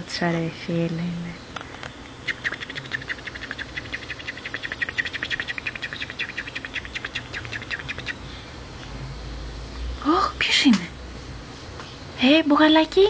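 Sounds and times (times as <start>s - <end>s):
parrot clicking chirps: 2.2s - 8.2s.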